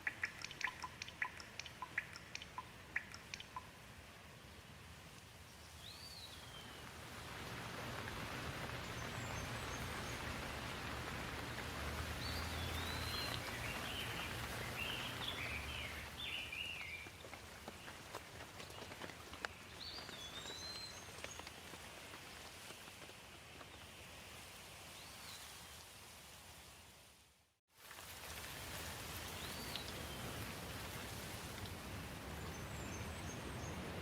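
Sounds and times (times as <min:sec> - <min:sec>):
bird chirping: 0:00.0 - 0:03.7, 0:12.1 - 0:17.1
steady rain falling: 0:00.0 - 0:34.0.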